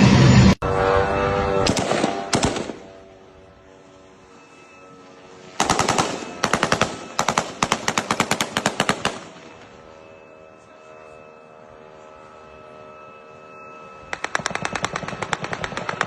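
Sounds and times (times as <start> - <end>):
automatic gunfire bursts: 5.6 - 9.3, 14.1 - 16.0.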